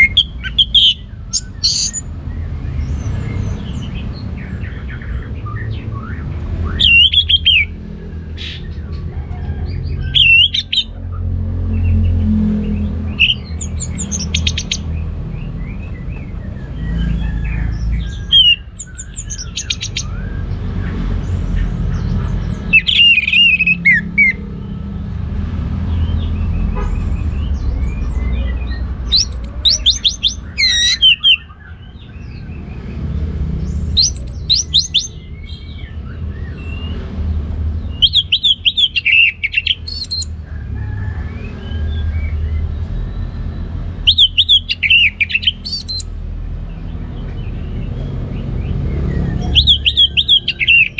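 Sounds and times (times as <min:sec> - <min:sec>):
bird singing trilled phrases: 0:00.0 - 0:02.2, 0:02.8 - 0:08.7, 0:11.8 - 0:17.2, 0:17.8 - 0:20.4, 0:26.0 - 0:32.8, 0:33.6 - 0:37.0, 0:37.8 - 0:40.4, 0:42.3 - 0:48.1, 0:49.2 - 0:50.9.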